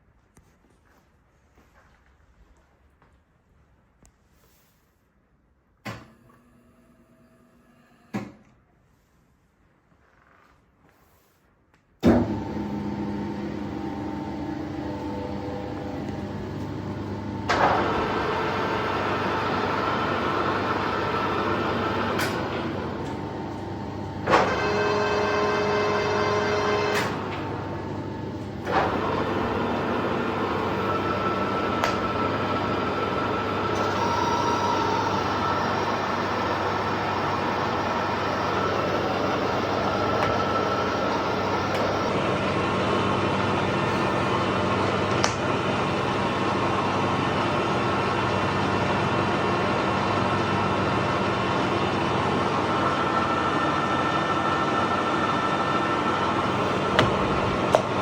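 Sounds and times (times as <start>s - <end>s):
lathe gears whining: 24.2s - 58.0s.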